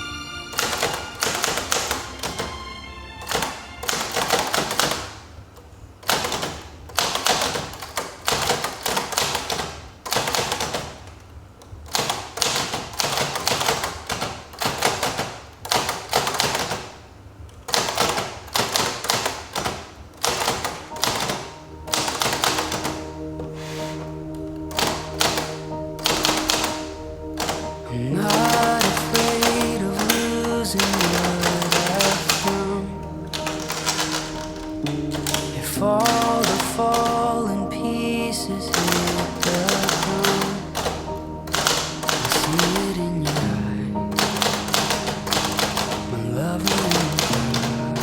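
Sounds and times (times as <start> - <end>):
soft background music: 0.0 - 5.1, 20.2 - 48.0
manual typewriter typing: 0.6 - 2.5, 3.3 - 37.5, 38.6 - 48.0.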